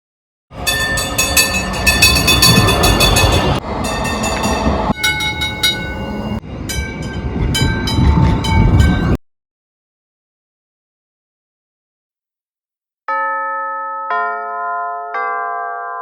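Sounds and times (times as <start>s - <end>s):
tram clattering on rails: 0.5s - 9.2s
wheels squealing: 0.6s - 9.2s.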